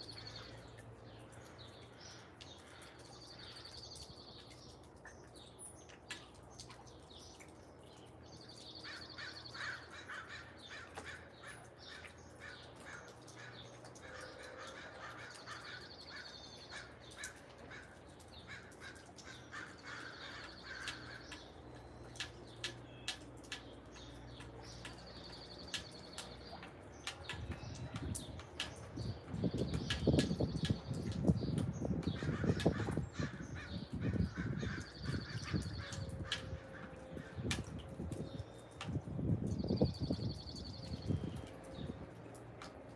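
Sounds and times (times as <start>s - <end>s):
rough low bird calls: 28.7s - 38.7s.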